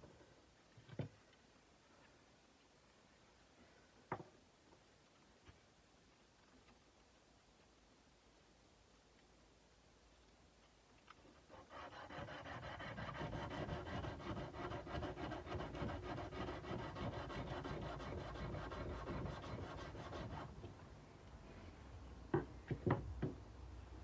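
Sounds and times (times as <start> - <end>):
sandpaper rubbing on steel blade: 11.5 - 20.6.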